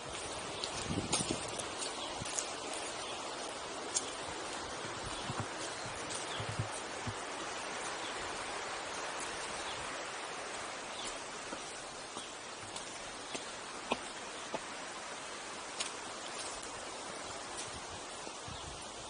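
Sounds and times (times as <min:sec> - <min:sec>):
river rushing: 0:00.0 - 0:19.0.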